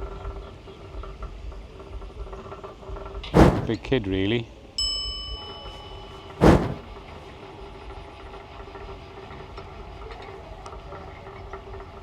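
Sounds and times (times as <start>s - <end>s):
loud thump: 3.4s - 3.8s, 6.4s - 6.9s.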